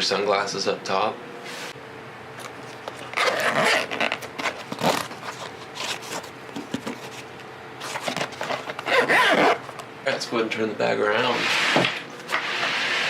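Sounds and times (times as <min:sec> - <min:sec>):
fabric backpack rustling: 0:07.0 - 0:09.7.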